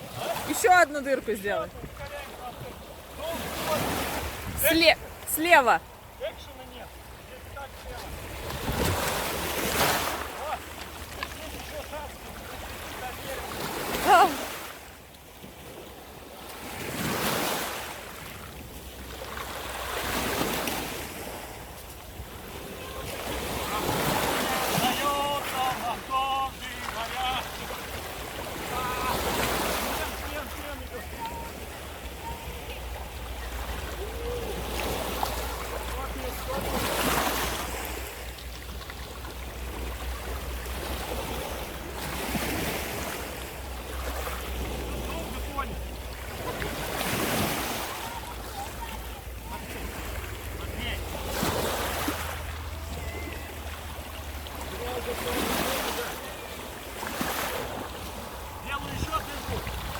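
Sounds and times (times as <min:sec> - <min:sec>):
rushing wind and water: 0:00.0 - 0:59.9
wind rumble on microphone: 0:08.0 - 0:09.5, 0:58.5 - 0:59.9.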